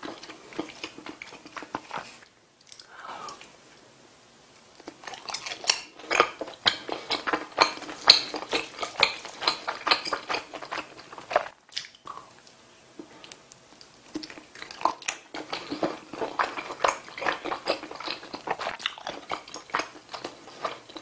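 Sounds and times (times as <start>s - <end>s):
chewing with sticky mouth clicks: 4.8s - 21.0s.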